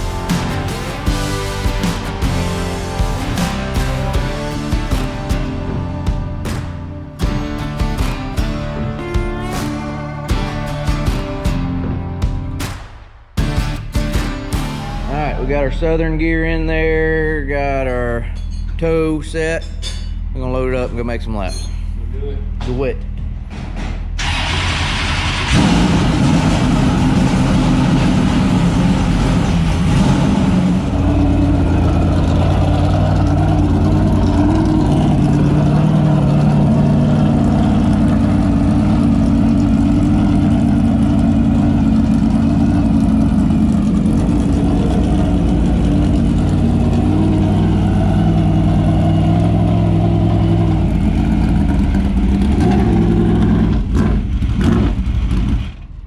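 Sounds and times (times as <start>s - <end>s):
race car engine idling: 0.0s - 12.6s, 24.2s - 56.0s.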